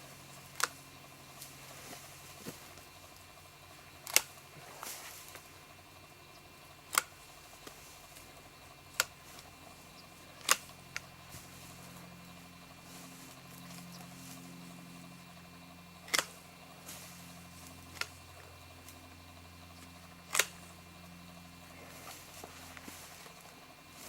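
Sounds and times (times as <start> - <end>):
pruning shears snipping: 0.4 - 3.3, 4.0 - 5.5, 6.9 - 8.3, 8.9 - 9.6, 10.3 - 12.2, 16.0 - 19.1, 19.8 - 21.1.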